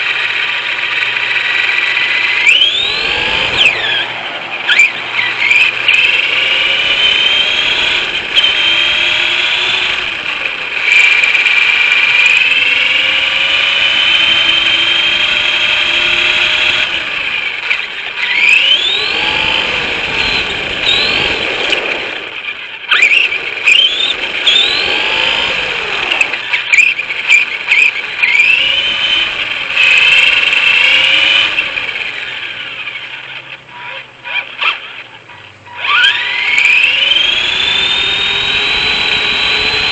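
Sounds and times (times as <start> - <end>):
rc car electric motor whining: 0.0 - 39.9.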